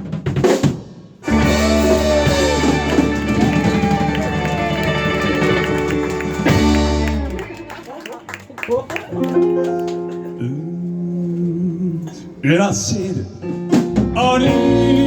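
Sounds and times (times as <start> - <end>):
electric guitar bending notes: 1.2 - 7.8, 9.2 - 12.4
live rock band playing: 1.2 - 10.4, 13.5 - 15.0.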